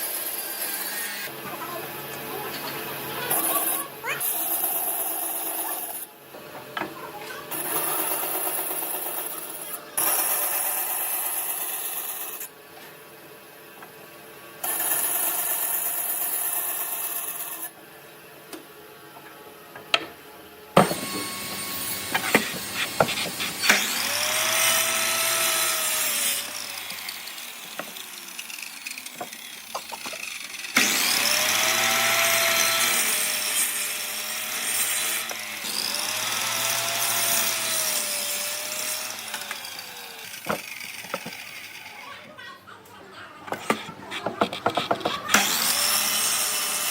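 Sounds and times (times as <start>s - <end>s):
power tools cutting wood: 0.0s - 6.1s, 6.8s - 12.5s, 14.6s - 17.8s, 20.8s - 42.2s, 43.5s - 46.9s.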